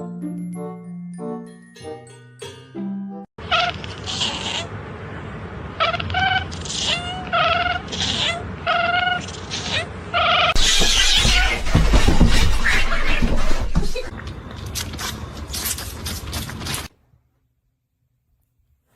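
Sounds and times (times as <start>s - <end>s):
cat meowing: 3.5s - 4.7s, 5.8s - 11.8s.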